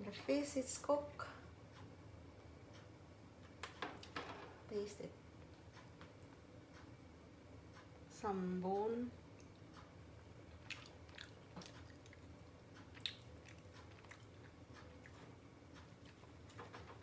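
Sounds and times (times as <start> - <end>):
person chewing: 10.5 - 16.4.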